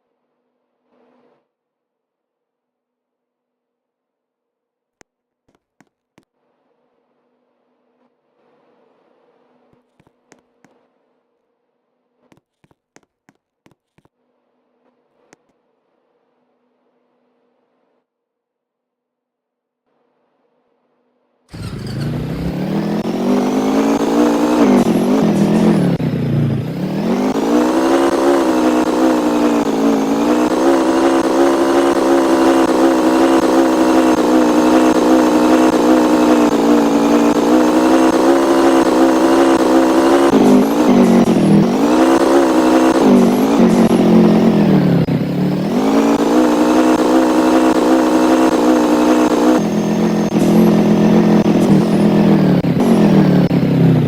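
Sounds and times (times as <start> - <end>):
engine running: 21.5 - 54.0.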